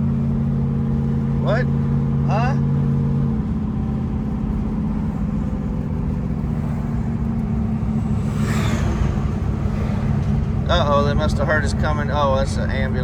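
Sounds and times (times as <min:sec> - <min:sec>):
car engine and road noise: 0:00.0 - 0:13.0
brief rushing sound: 0:07.7 - 0:11.4.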